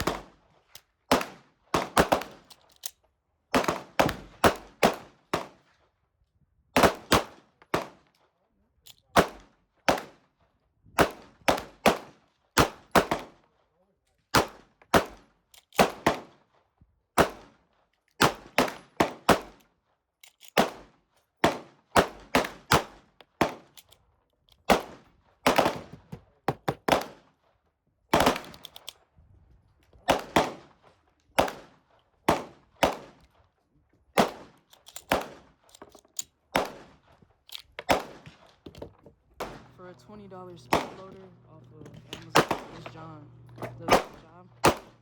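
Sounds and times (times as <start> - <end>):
handgun shots: 39.4 - 39.8, 40.6 - 45.0.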